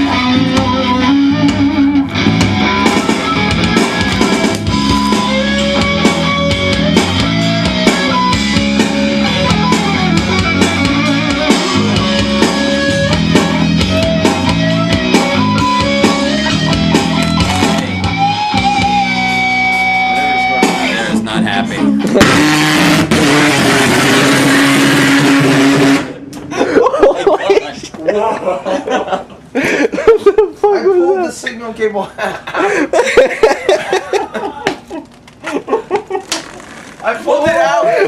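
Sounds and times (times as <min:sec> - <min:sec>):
distorted speaker noise: 0:17.1 - 0:18.1, 0:36.2 - 0:38.0.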